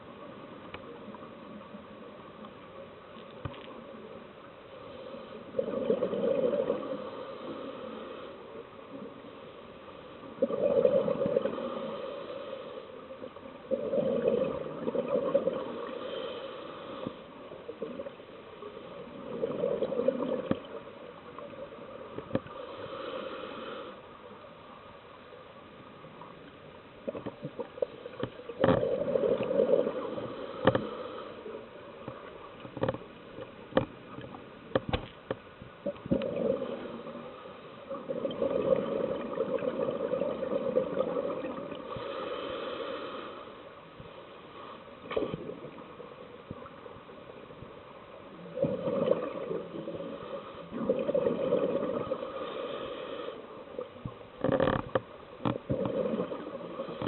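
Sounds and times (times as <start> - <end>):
diver exhaling bubbles: 10.4 - 11.9, 13.7 - 15.9, 37.9 - 41.9, 48.6 - 52.4.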